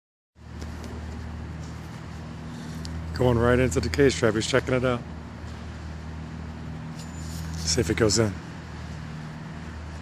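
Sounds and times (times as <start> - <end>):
outdoor background noise: 0.4 - 10.0.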